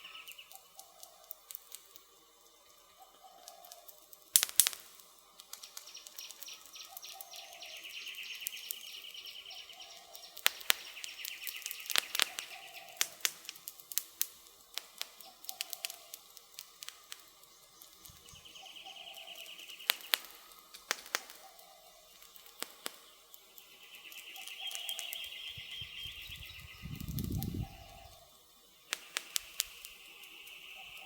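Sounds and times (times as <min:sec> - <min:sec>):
wood fire crackling: 0:00.0 - 0:31.0
bird low call: 0:05.9 - 0:13.2, 0:23.8 - 0:28.3
bird high trill: 0:23.9 - 0:28.3.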